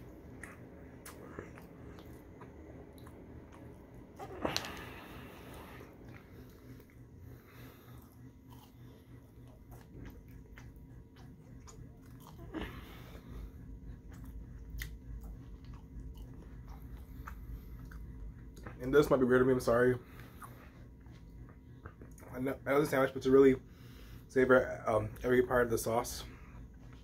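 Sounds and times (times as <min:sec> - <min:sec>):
person chewing fries: 0:00.0 - 0:18.9, 0:20.1 - 0:22.3.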